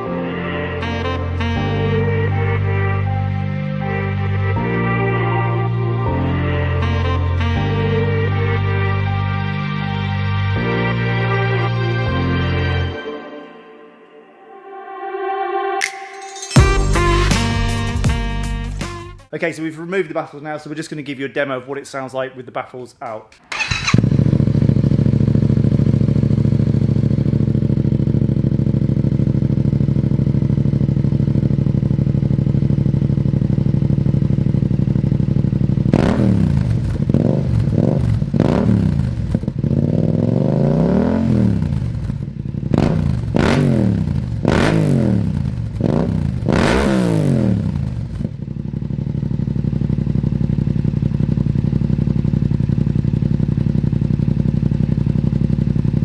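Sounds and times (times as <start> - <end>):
motorcycle engine idling and revving: 23.5 - 56.0.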